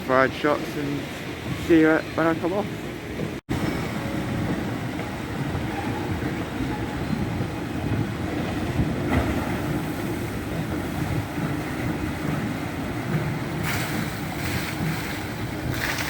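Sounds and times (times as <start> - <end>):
ride machinery rumbling: 0.0 - 16.0
rushing water: 8.9 - 16.0.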